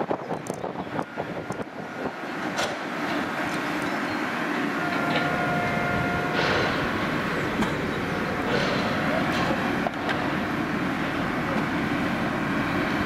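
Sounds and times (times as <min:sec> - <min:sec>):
train running noise: 0:00.0 - 0:13.0
low tone: 0:03.5 - 0:10.3.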